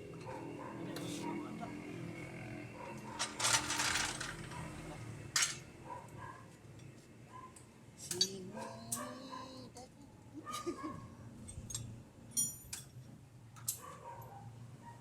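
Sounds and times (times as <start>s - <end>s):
hand tools clinking on metal: 3.0s - 5.6s, 8.0s - 9.2s, 11.5s - 12.9s.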